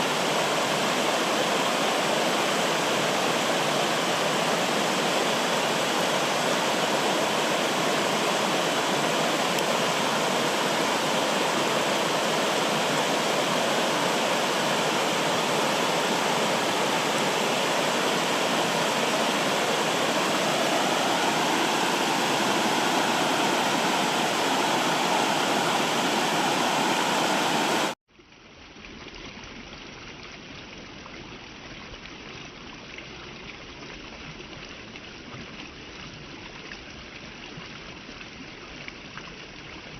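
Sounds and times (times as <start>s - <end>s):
rushing water: 0.0s - 28.0s
dull water flow: 0.0s - 39.9s.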